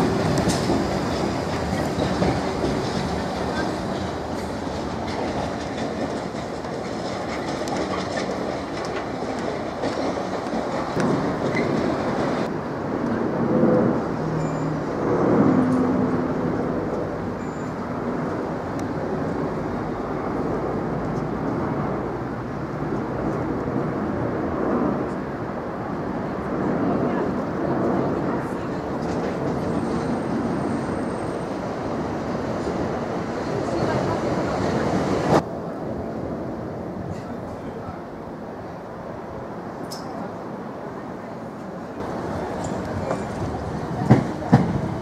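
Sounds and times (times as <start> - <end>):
train wheels clattering: 0.0 - 12.5, 42.0 - 45.0
jet engines rumbling overhead: 0.0 - 45.0.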